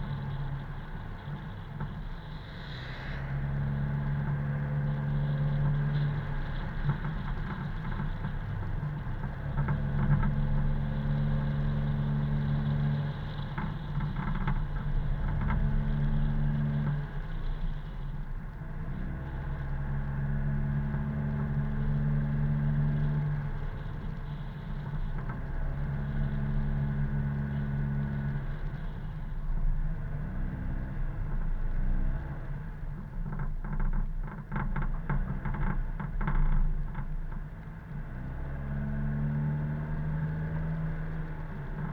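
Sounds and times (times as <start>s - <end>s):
car engine and road noise: 0.0s - 41.9s.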